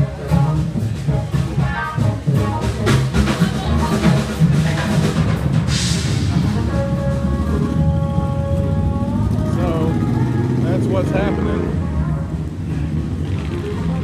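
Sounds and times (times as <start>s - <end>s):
live band music: 0.0s - 12.7s
cymbal crash: 5.6s - 6.8s.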